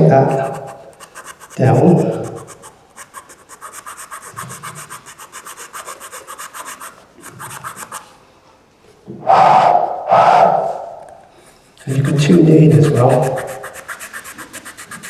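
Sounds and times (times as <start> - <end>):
hand file rasping on wood: 0.0 - 8.2, 11.5 - 15.0.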